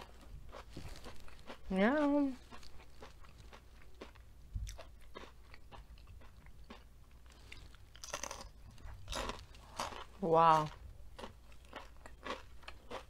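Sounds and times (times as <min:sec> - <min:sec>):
crunchy chewing: 0:00.0 - 0:13.0.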